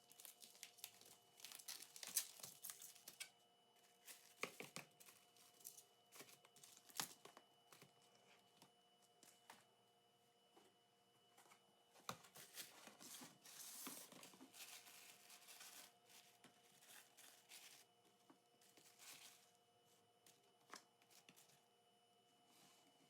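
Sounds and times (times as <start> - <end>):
plastic wrapping rustling: 0.0 - 3.2.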